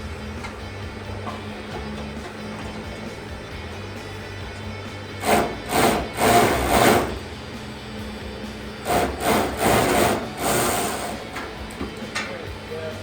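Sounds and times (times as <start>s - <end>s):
faint background music: 0.0s - 13.0s
hand tool rasping strokes: 5.2s - 7.3s, 8.8s - 11.4s.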